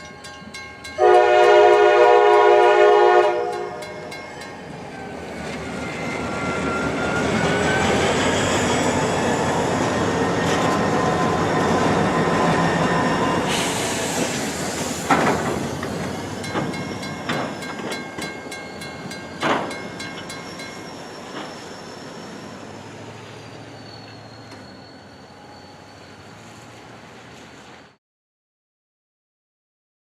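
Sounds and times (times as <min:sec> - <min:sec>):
freight train rumbling: 0:00.0 - 0:27.9
wheels clanking over rail joints: 0:03.5 - 0:22.4
high wheel squeal: 0:04.2 - 0:26.7.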